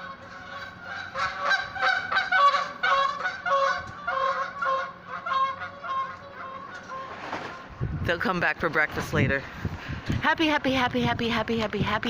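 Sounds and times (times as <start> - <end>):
geese honking: 0.0 - 8.8.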